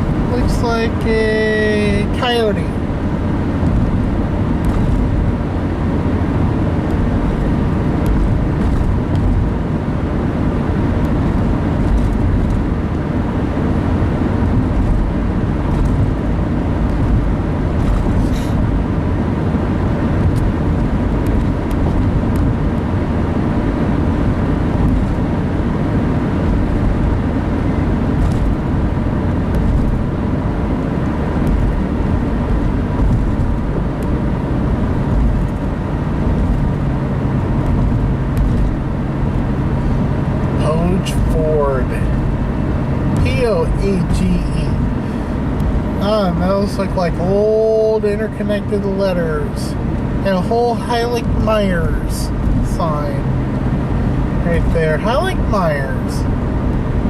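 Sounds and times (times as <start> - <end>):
car road noise from inside: 0.0 - 57.0.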